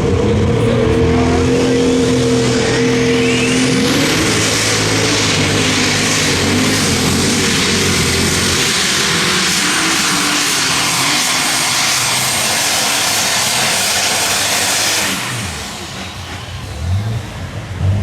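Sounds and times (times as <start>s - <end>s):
tractor diesel engine roaring: 0.0s - 18.0s.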